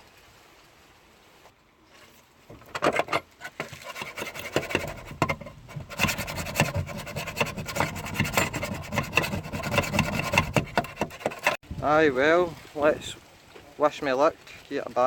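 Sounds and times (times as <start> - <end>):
scrubbing on bare metal: 2.5 - 11.6.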